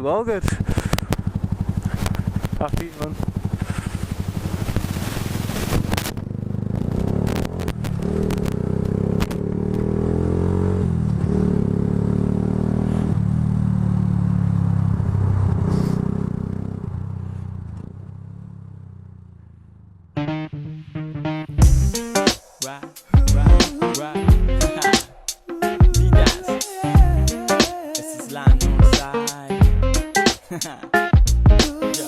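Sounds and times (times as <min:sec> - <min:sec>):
motorcycle engine running: 0:00.3 - 0:20.1, 0:21.6 - 0:22.0, 0:23.2 - 0:23.7, 0:24.3 - 0:24.7, 0:25.9 - 0:26.4, 0:27.0 - 0:27.4, 0:28.4 - 0:29.0.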